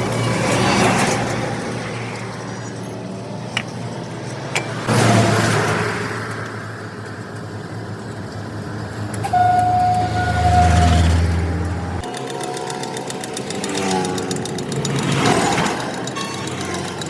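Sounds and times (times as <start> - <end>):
traffic engines humming: 0.0 - 17.0
vehicle passing: 8.7 - 16.1.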